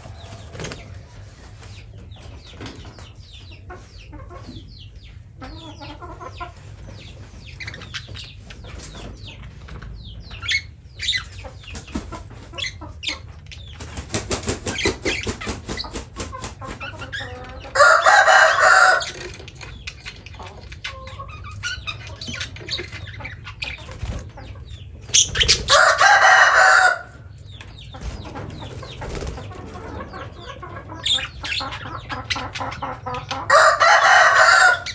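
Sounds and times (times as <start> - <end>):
wings fluttering: 0.0 - 1.8, 13.7 - 17.0, 23.8 - 24.4, 25.0 - 26.5, 28.0 - 29.8
birds chirping: 0.0 - 34.9
loud drawn-out bird calls: 25.0 - 27.4.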